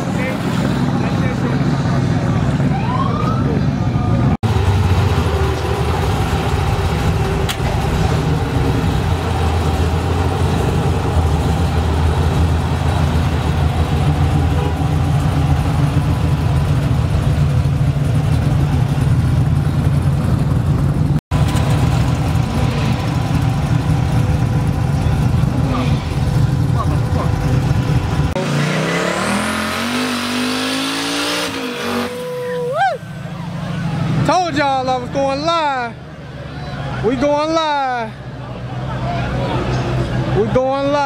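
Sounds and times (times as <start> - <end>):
car engine running: 4.1 - 35.7.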